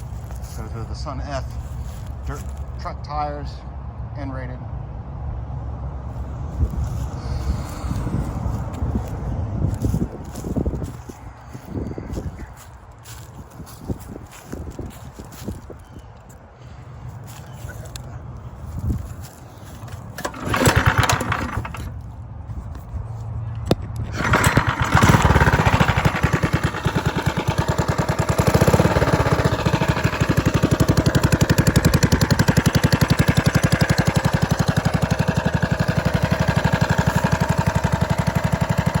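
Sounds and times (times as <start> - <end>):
small engine starting and running: 0.0 - 2.8, 6.6 - 13.5, 19.0 - 22.1, 24.0 - 39.0.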